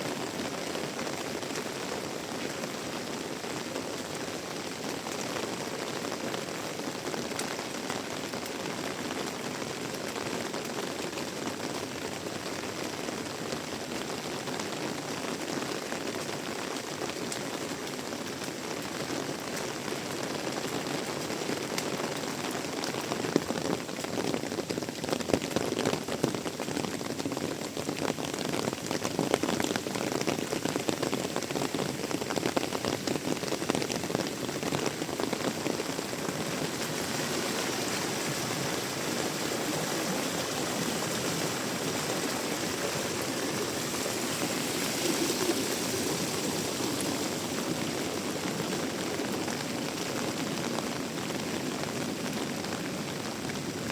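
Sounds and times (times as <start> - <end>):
heavy rain pouring: 0.0 - 53.9
raindrop impacts: 15.8 - 52.7.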